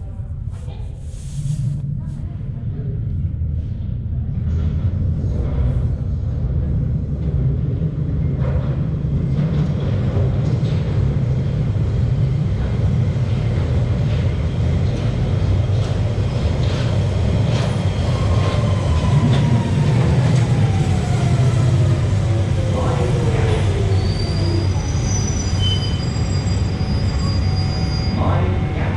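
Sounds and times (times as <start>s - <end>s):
train rumbling at platform: 0.0s - 28.9s
faint clicks and squeals: 24.1s - 28.2s.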